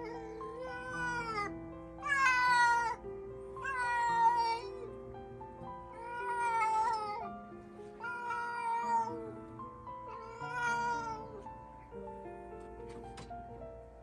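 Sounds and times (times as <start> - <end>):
cat meowing: 0.0 - 3.0, 3.6 - 4.9, 5.9 - 7.2, 8.0 - 9.3, 10.0 - 11.5
background music: 0.0 - 14.0.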